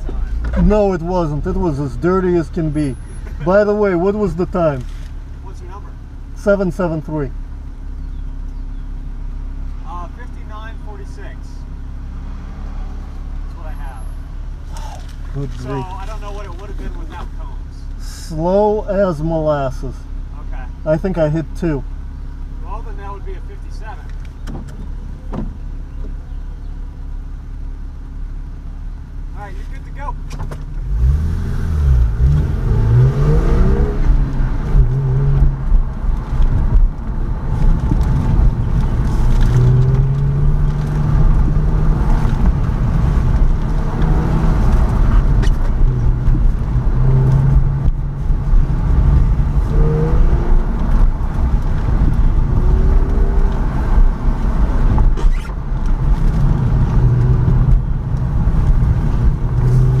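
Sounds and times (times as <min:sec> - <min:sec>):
car engine accelerating hard: 0:09.6 - 0:19.7, 0:29.5 - 1:00.0.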